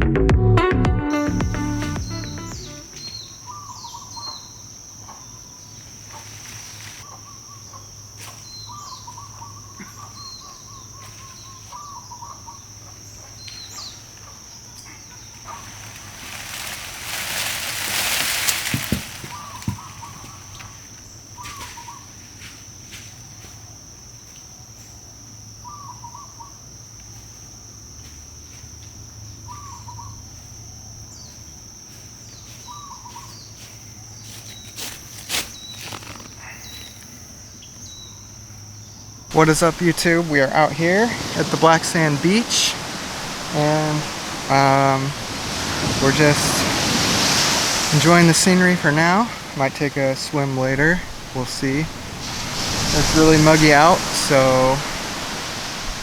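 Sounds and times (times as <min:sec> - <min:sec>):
high-pitched drone: 0:01.1 - 0:03.1
bird double call: 0:18.9 - 0:20.5
loud rush of noise: 0:39.3 - 0:56.0.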